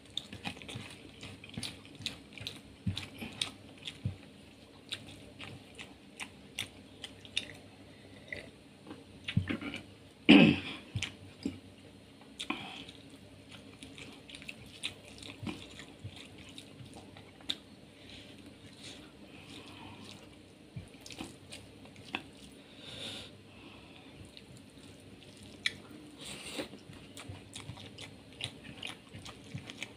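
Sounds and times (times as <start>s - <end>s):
wet chewing and lip smacks: 0.1s - 7.6s, 18.6s - 22.6s, 24.2s - 29.9s.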